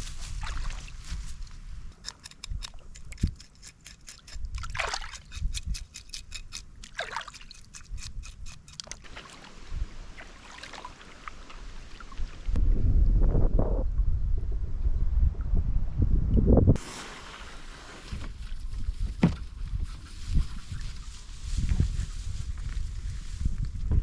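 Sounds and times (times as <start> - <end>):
short knock: 19.2 - 19.4.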